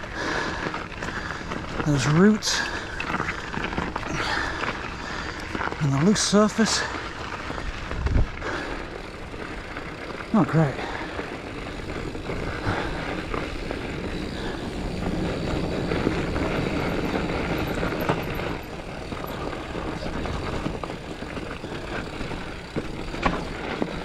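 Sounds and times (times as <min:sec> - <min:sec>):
bike tyres rumbling on dirt: 0:00.0 - 0:24.0
bike knocks and rattles: 0:08.5 - 0:24.0.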